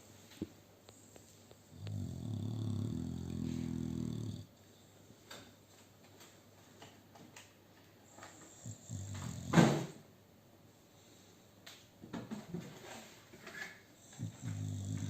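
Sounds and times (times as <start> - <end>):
dog snoring: 1.7 - 4.5, 8.3 - 10.0, 14.0 - 15.0.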